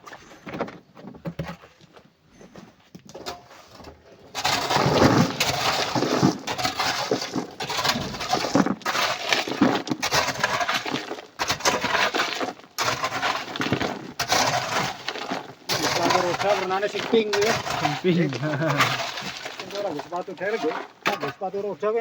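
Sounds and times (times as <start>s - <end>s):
rock and coral clattering: 0.0s - 22.0s.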